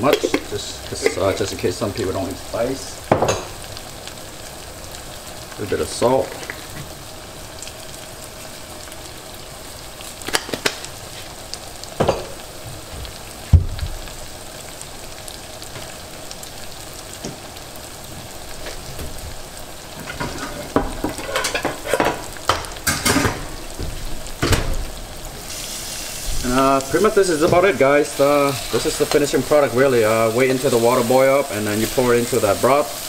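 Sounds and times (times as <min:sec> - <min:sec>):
kitchen utensils clattering: 0:00.0 - 0:01.4, 0:12.0 - 0:12.4, 0:19.9 - 0:24.8
paste sizzling in a pot: 0:00.0 - 0:33.0.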